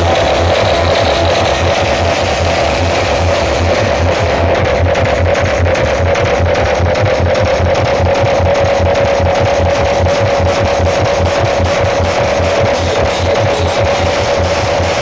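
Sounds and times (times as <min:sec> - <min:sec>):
loudspeakers playing bass thumps: 0:00.0 - 0:15.0
steady held tone: 0:08.0 - 0:15.0.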